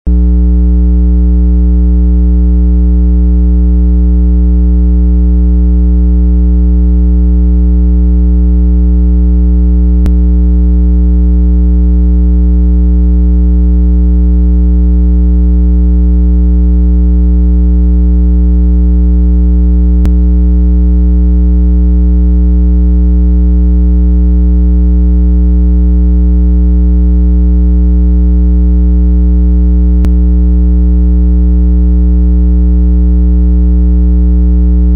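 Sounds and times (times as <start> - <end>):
low synthesized tone: 0.1 - 2.1, 8.7 - 21.9, 29.8 - 30.6.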